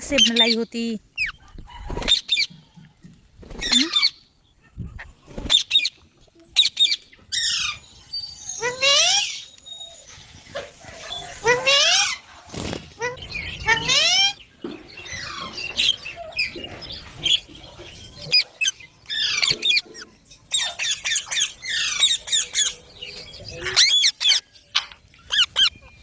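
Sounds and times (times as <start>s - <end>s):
parakeets calling: 6.6s - 9.6s, 10.5s - 26.0s.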